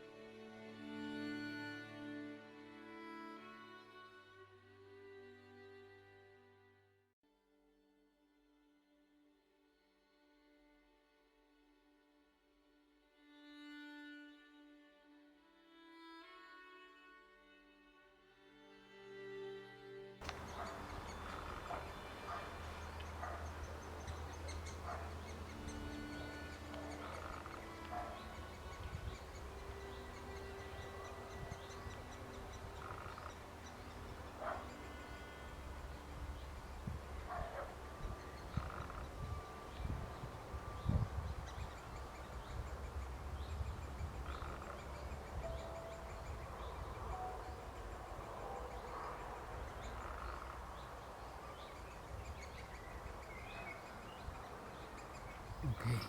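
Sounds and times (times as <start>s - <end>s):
birds calling: 20.2s - 56.0s
wind rumble: 20.3s - 34.3s, 35.5s - 48.4s.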